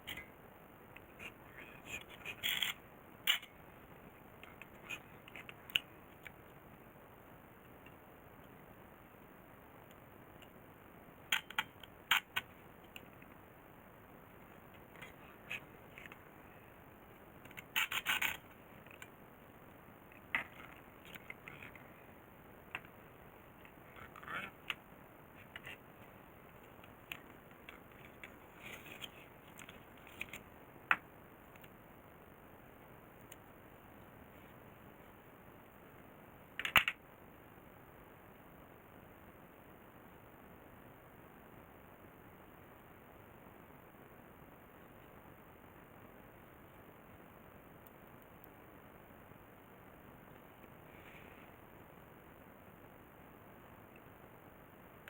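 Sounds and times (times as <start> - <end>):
steady hiss: 41.6 - 55.0.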